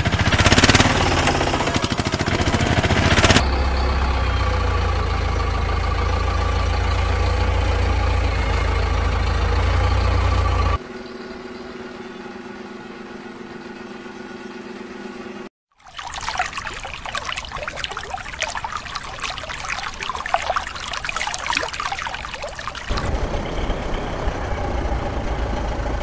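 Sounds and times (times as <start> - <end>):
fast rattling engine: 0.0 - 10.8
higher-pitched engine hum: 0.0 - 15.4.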